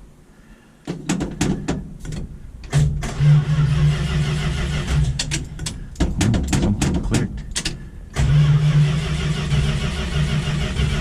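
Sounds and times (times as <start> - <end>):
starter motor whirring: 2.7 - 5.2, 8.1 - 11.0.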